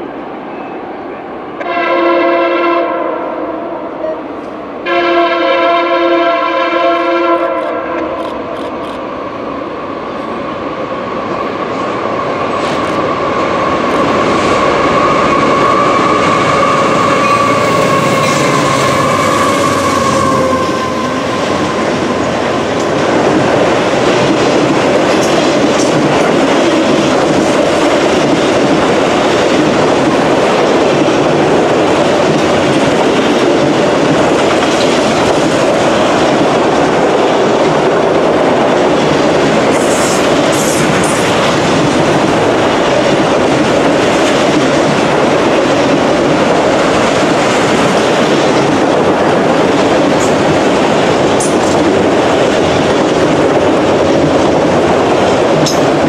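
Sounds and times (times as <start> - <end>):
freight train rumbling past: 0.0 - 56.0
train air horn chord: 1.6 - 4.2, 4.8 - 8.1.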